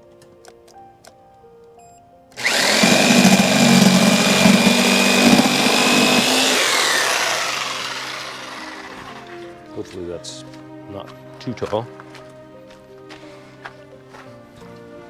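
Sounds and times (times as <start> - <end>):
power drill motor whine: 2.4 - 9.4.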